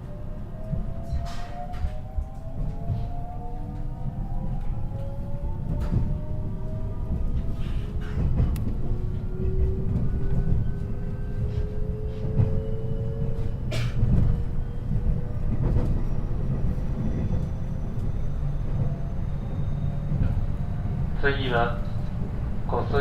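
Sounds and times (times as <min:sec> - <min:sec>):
train running with low rumble: 0:00.0 - 0:23.0.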